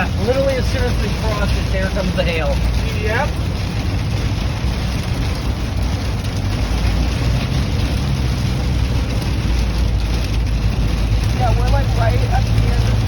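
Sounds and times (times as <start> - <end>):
hail and rain on car roof: 0.0 - 13.0
road and engine rumble: 0.0 - 13.0.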